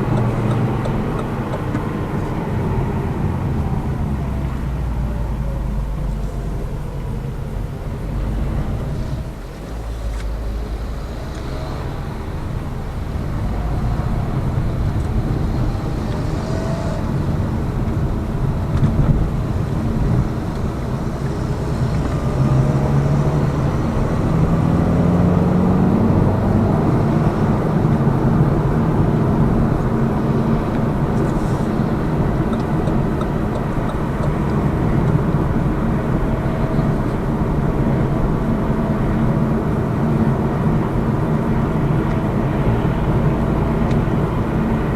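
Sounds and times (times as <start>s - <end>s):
car engine inside cabin: 0.0s - 44.9s
road noise: 0.0s - 44.9s.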